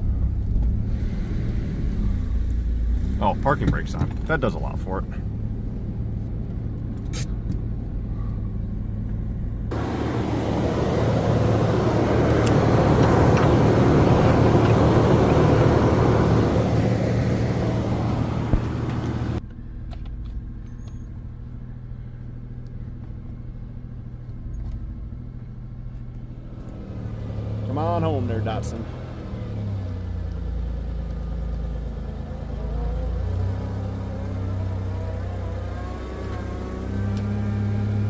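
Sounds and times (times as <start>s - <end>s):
vehicle engine running: 0.0s - 38.0s
loud rushing noise: 9.7s - 19.4s.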